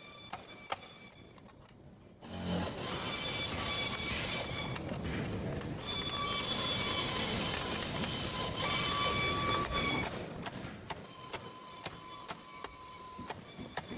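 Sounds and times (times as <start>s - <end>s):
machine whirring with high tones: 5.8s - 10.2s, 11.0s - 13.9s.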